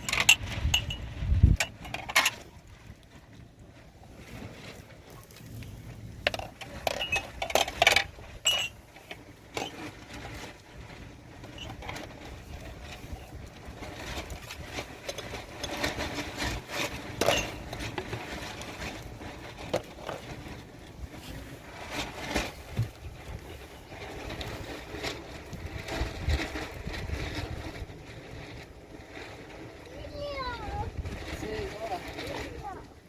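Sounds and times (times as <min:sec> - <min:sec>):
objects knocking and clinking: 0:00.0 - 0:02.4, 0:06.2 - 0:09.8, 0:17.1 - 0:18.2
low steady rumble: 0:00.0 - 0:33.0.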